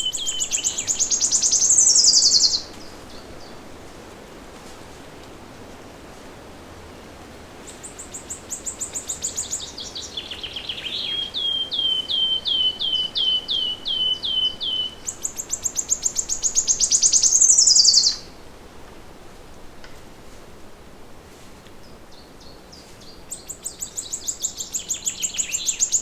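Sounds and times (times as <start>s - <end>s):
songbird singing: 0.0s - 3.7s, 7.6s - 18.4s, 21.7s - 26.0s
faint steady hiss: 0.0s - 26.0s.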